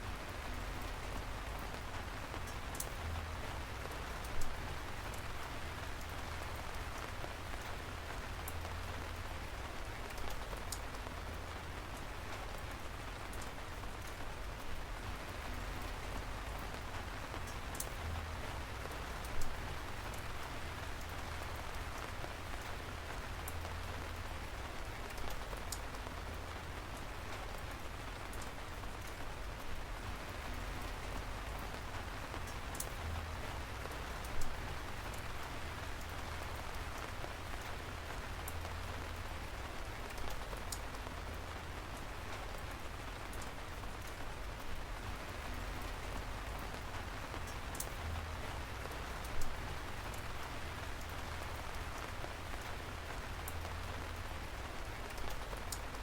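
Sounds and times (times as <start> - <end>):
steady rain hiss: 0.0 - 56.0
single raindrops ticking: 15.5 - 56.0.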